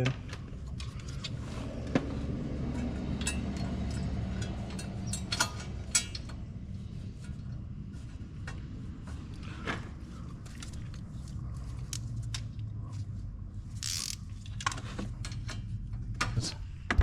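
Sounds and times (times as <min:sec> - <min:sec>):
metallic clicks of hand tools: 0:13.8 - 0:14.2.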